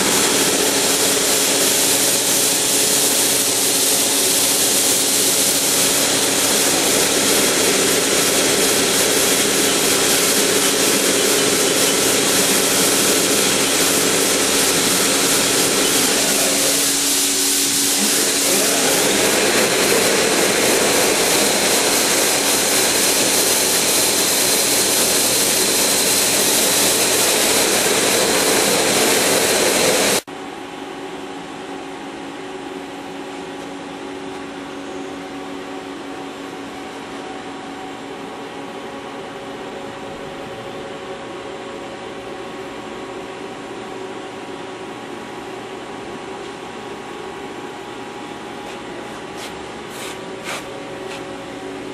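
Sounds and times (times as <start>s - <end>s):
lathe running with loud hiss: 0.0s - 30.3s, 41.4s - 51.9s.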